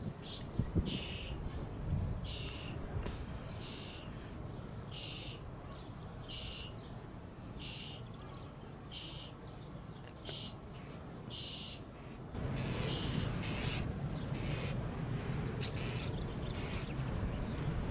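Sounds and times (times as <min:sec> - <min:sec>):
wind rumbling on microphone: 0:00.0 - 0:04.7, 0:12.4 - 0:17.9.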